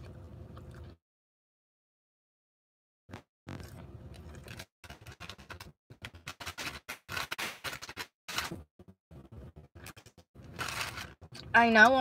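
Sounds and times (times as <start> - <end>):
close-up chewing: 0.0 - 1.0.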